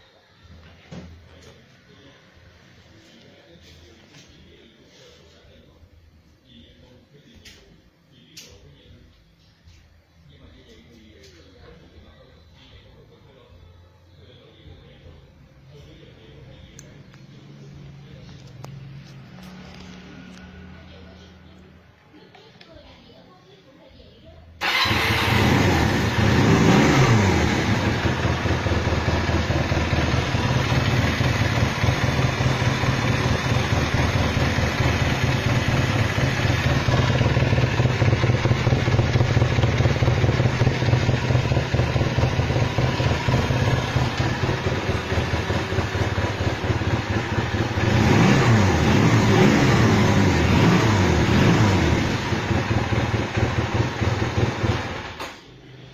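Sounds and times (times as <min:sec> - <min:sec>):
engine throttle blips: 0:24.6 - 0:55.2
motorcycle engine idling: 0:24.6 - 0:55.4.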